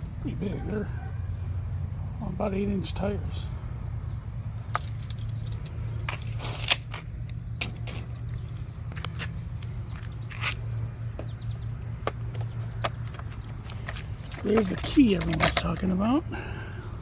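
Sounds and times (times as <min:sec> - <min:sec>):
steady low hum: 0:00.0 - 0:17.0
small plastic parts clicking: 0:04.6 - 0:08.0.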